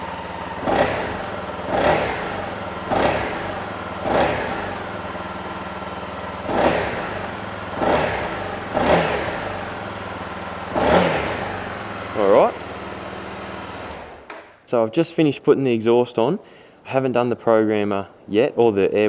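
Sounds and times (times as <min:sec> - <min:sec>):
motorcycle engine idling and blipped: 0:00.0 - 0:14.6.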